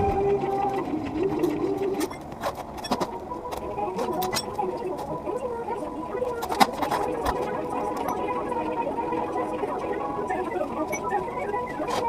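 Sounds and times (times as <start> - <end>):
hand tools clinking on metal: 4.0 - 5.1.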